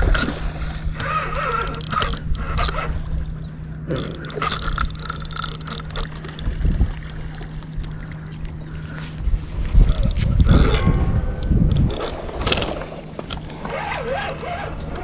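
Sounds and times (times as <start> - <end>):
fishing reel clicking and whirring: 0.0 - 3.1, 3.9 - 7.6, 9.8 - 12.2
steady low hum: 0.0 - 15.0.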